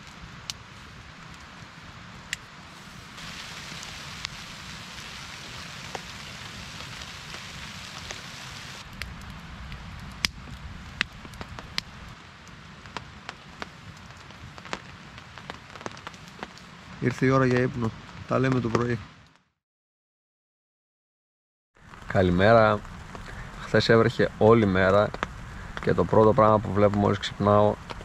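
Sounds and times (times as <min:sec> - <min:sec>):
rain hissing: 0:02.6 - 0:09.1, 0:21.8 - 0:28.0
raindrops ticking: 0:02.8 - 0:08.8.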